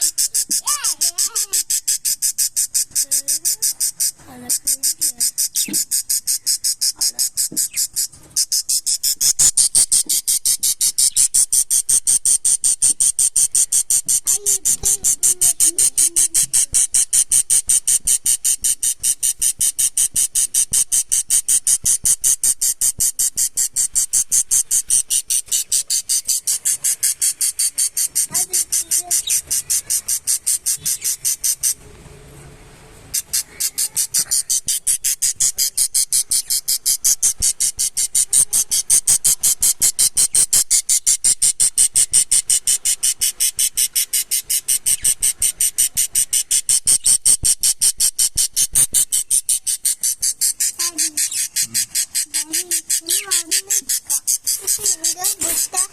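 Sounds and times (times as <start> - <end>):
budgerigar chick cheeping: 0.0 - 31.9, 33.1 - 55.9.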